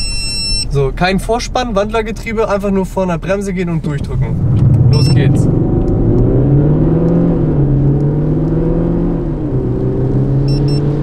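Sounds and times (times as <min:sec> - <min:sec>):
short electronic beeps: 0:00.0 - 0:00.8, 0:04.9 - 0:05.4, 0:10.5 - 0:11.0
car engine accelerating: 0:02.5 - 0:11.0.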